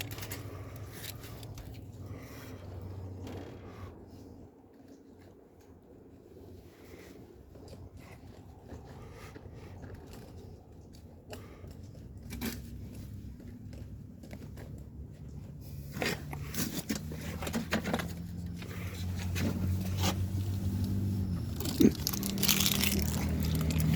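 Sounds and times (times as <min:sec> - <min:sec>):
objects being handled: 0:00.0 - 0:02.2, 0:14.3 - 0:23.9.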